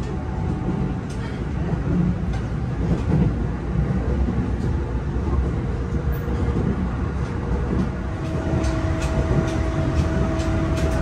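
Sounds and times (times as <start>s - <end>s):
train wheels rumbling on rails: 0.0s - 11.0s
train motor whine: 7.9s - 11.0s.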